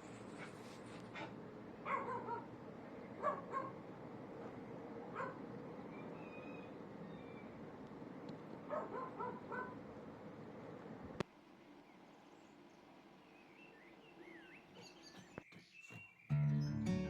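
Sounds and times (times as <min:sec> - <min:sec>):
dog barking: 0:01.1 - 0:02.5, 0:03.2 - 0:03.8, 0:05.1 - 0:05.4, 0:08.7 - 0:09.8.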